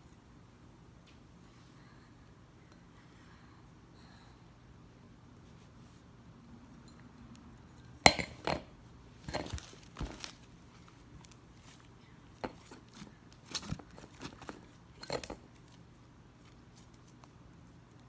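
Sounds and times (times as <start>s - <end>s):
hard objects knocking and clinking: 7.8s - 10.3s, 13.6s - 15.4s.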